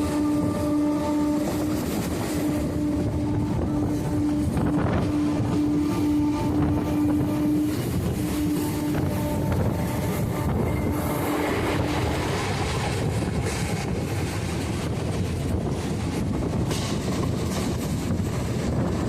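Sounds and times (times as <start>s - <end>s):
train wheels rumbling: 0.0s - 19.0s
clacks over rail joints: 6.6s - 19.0s.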